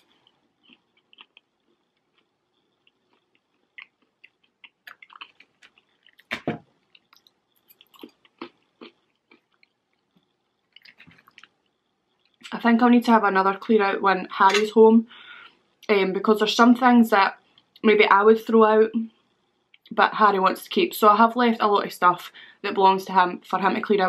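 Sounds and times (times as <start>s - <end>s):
quiet chewing mouth sounds: 0.0s - 12.5s.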